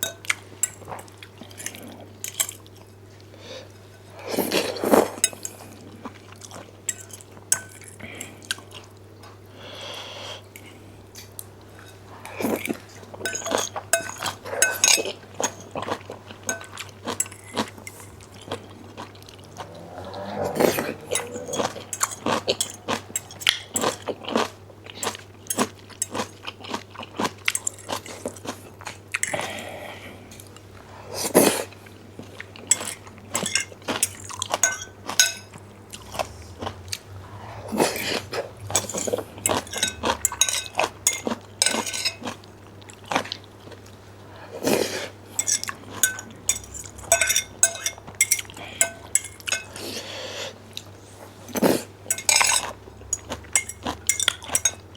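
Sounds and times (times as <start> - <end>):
utensils clinking on dish: 0.0 - 2.8, 6.5 - 8.7, 11.8 - 18.6, 19.6 - 26.8, 32.6 - 36.8, 37.8 - 42.4, 45.4 - 50.1, 52.0 - 54.9.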